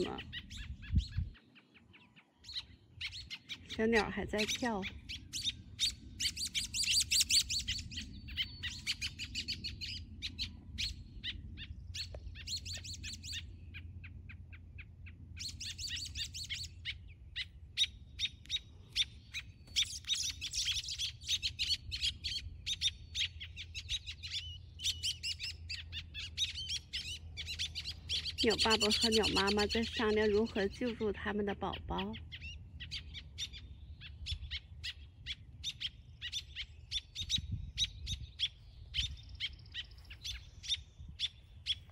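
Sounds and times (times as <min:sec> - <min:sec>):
steady low hum: 0:02.6 - 0:41.9
songbird alarm chips: 0:15.4 - 0:31.1.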